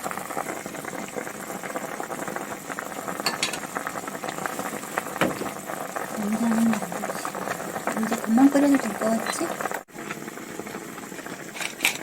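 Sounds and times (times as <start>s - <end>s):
soup broth bubbling: 0.0s - 12.0s.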